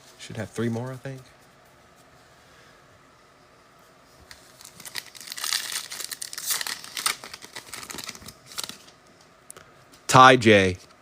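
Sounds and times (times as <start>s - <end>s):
foil pack tearing and crinkling: 4.3s - 8.9s.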